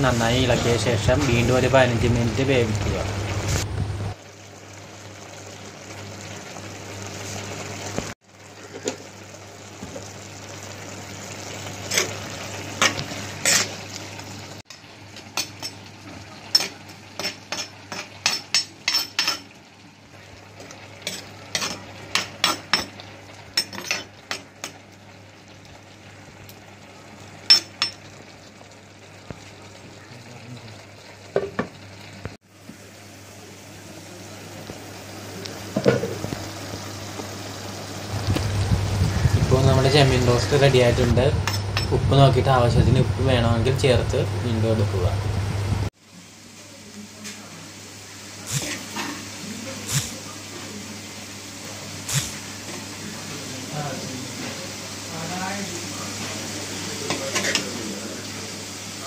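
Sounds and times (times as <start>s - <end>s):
prawns sizzling in a pot: 0.0s - 59.0s
metal spoon scraping pot: 13.4s - 13.8s.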